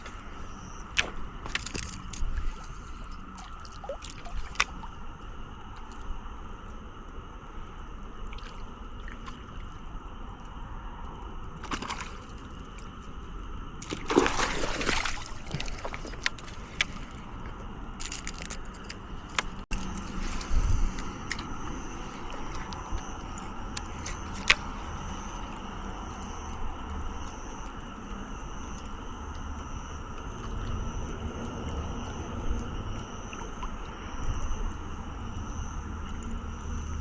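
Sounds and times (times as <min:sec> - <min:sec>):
water splashing: 0:00.9 - 0:05.0, 0:11.6 - 0:13.0, 0:13.8 - 0:17.4
small clicks: 0:15.5 - 0:21.5.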